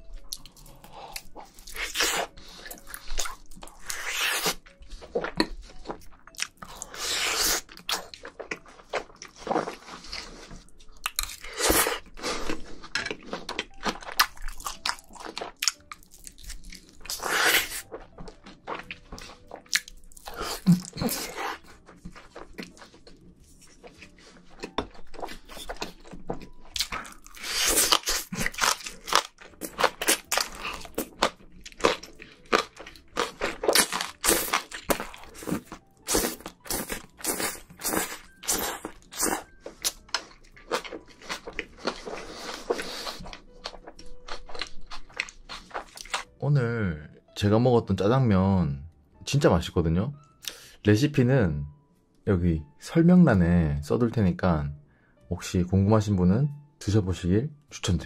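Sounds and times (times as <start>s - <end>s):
person chewing: 0.0s - 46.4s
crunchy bites: 26.8s - 42.1s.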